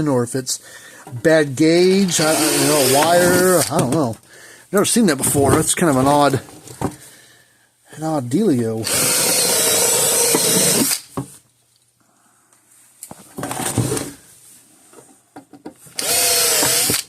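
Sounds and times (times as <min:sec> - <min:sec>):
electric drill drilling rivets: 0:02.0 - 0:03.9, 0:08.8 - 0:11.1, 0:15.9 - 0:17.0.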